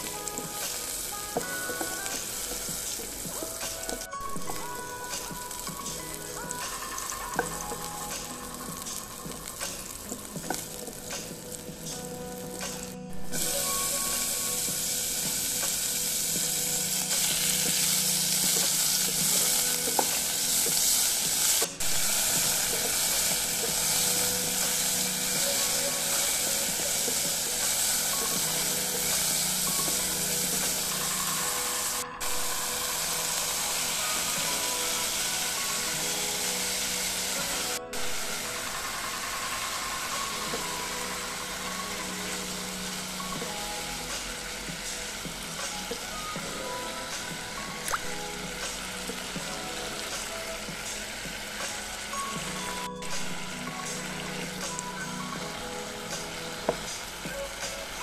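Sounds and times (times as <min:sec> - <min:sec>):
garlic and meat sizzling in pan: 0:00.0 - 0:58.0.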